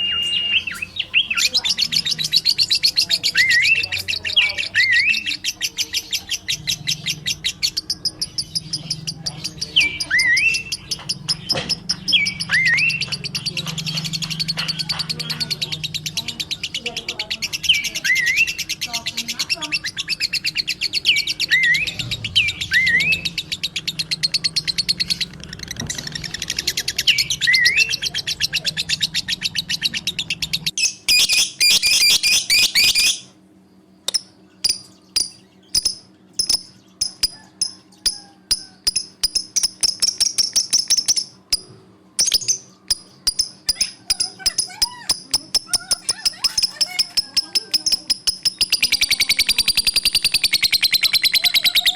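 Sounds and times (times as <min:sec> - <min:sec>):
rising whistled bird calls: 0:00.0 - 0:01.6, 0:20.0 - 0:25.3
caged birds chirping: 0:00.0 - 0:51.9.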